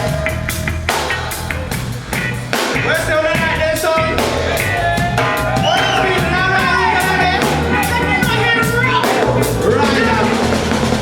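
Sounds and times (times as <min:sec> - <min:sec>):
bass guitar: 0:00.0 - 0:11.0
drum kit: 0:00.0 - 0:11.0
live reggae band playing: 0:00.0 - 0:11.0
person singing: 0:04.0 - 0:10.7.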